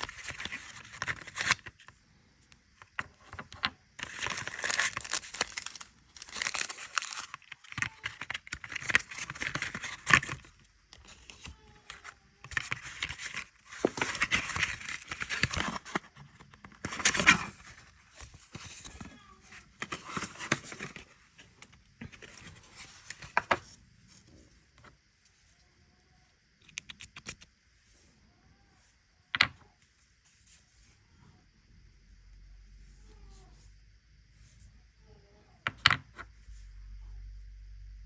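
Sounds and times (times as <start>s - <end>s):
paper packaging rustling and tearing: 0.0s - 1.8s, 3.0s - 21.1s.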